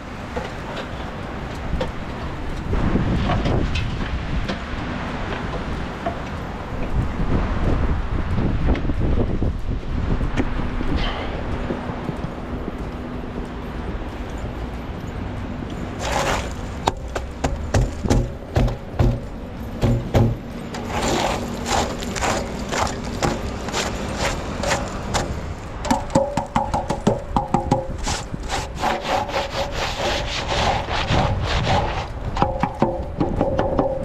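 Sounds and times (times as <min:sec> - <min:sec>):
rough scraping and crunching: 0:15.7 - 0:18.4, 0:20.5 - 0:26.1, 0:27.8 - 0:32.8.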